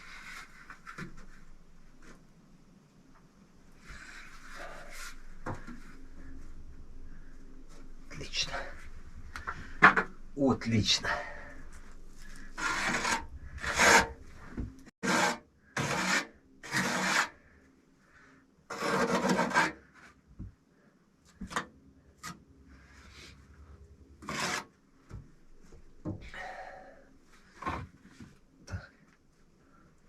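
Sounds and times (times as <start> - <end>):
hand scraping on brick: 11.7 - 17.3, 24.2 - 24.7.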